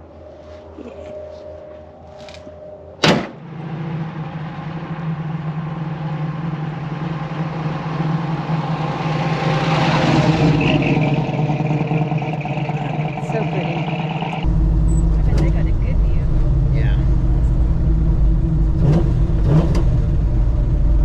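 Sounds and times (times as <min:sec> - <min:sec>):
car hood slamming shut: 0:03.0 - 0:03.5
car engine driving past: 0:03.0 - 0:21.0.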